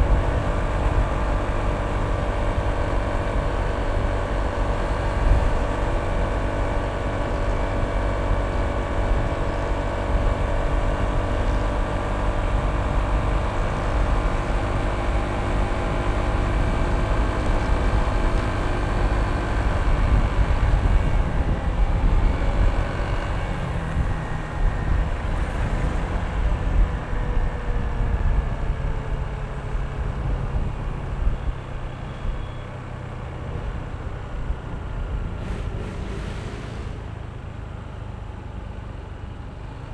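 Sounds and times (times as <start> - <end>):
scooter engine running: 0.0 - 27.7
wind on microphone: 0.0 - 31.5.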